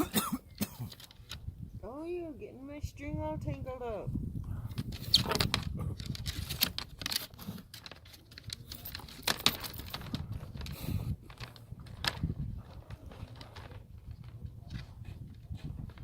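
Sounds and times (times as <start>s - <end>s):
hide lacing clicks and rustles: 0.8s - 1.4s, 4.7s - 16.0s.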